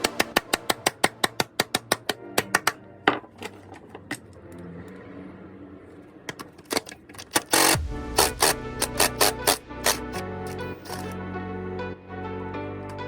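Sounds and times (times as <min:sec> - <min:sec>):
background music: 0:00.0 - 0:13.0
sharp clicks: 0:06.6 - 0:11.2.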